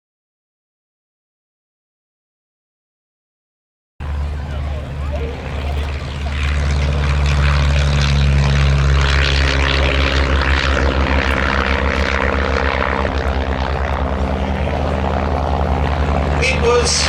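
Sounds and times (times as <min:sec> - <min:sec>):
propeller aircraft engine: 0:04.0 - 0:17.0.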